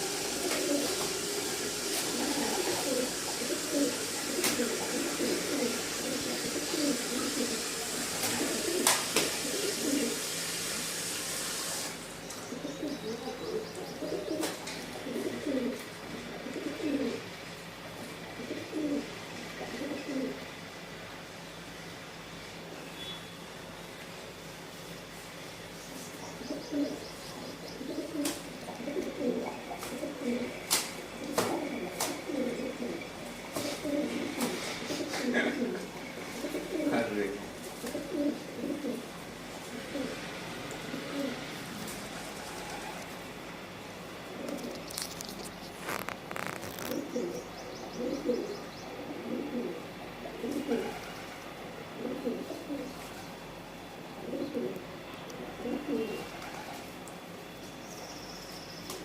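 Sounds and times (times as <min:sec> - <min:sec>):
birds cooing: 0:00.0 - 0:10.9, 0:11.6 - 0:21.8, 0:25.4 - 0:59.0
sharp clicks and rustling: 0:44.5 - 0:47.1.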